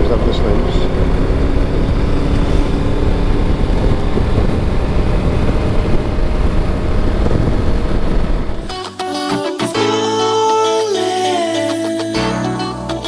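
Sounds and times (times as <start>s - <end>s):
motorcycle engine running: 0.0s - 8.7s
wind noise on microphone: 0.8s - 8.8s.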